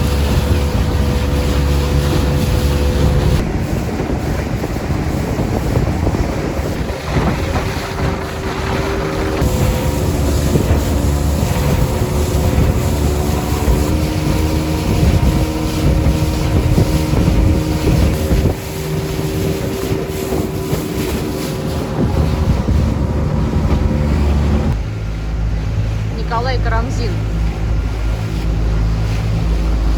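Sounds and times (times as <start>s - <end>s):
outboard motor droning: 0.0s - 29.9s
wind buffeting microphone: 0.0s - 29.9s.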